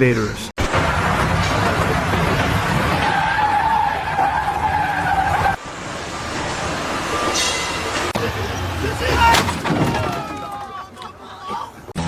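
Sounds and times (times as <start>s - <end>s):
heavy vehicle rumbling: 0.6s - 12.0s
high squeal: 7.0s - 8.2s.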